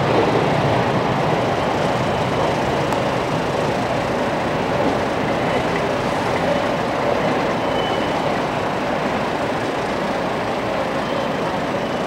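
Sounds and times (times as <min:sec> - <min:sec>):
train wheels rumbling on rail: 0:00.0 - 0:12.0
high wheel squeal: 0:07.5 - 0:08.4, 0:10.9 - 0:12.0.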